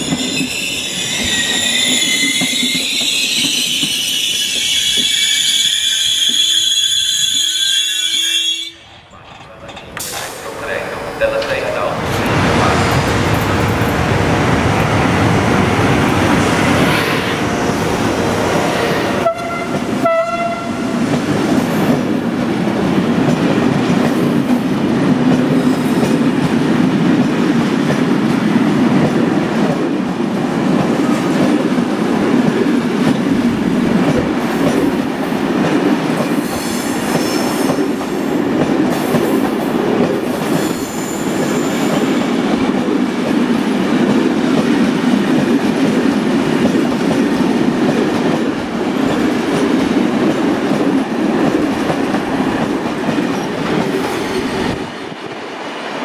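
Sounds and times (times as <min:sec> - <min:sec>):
train wheels rumbling on rails: 0:00.0 - 0:06.6, 0:08.9 - 0:56.0
high wheel squeals: 0:00.0 - 0:08.8
clickety-clack over rail joints: 0:09.0 - 0:15.1, 0:19.3 - 0:55.4.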